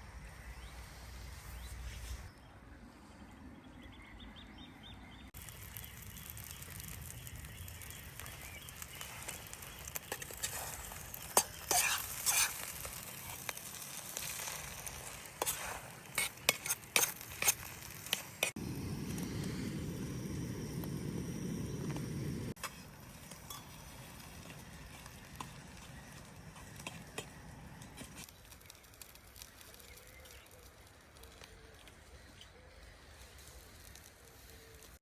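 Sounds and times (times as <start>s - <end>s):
food sizzling in a pan: 5.4s - 30.8s.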